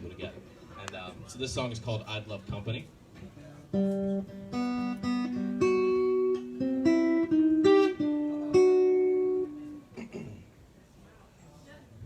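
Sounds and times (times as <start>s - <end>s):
guitar picked notes and chords: 3.7s - 10.0s.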